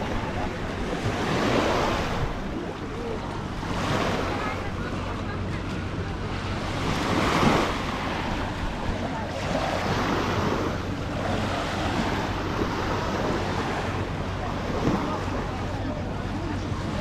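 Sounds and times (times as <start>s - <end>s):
sea surf washing onto beach: 0.0s - 17.0s.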